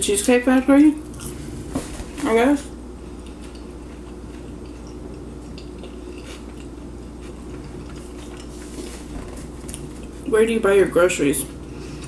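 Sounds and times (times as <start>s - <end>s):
low hum: 0.8s - 5.2s
chewing with mouth clicks: 1.0s - 1.5s, 3.0s - 10.3s.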